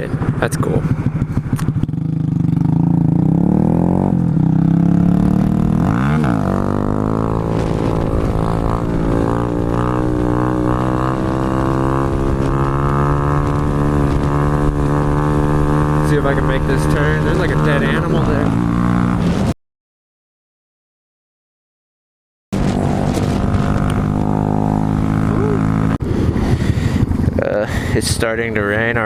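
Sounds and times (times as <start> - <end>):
small motorcycle engine running: 22.6 - 26.0.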